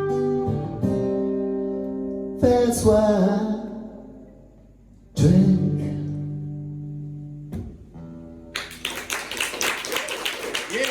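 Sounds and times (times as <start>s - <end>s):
audience applause: 8.6s - 10.9s.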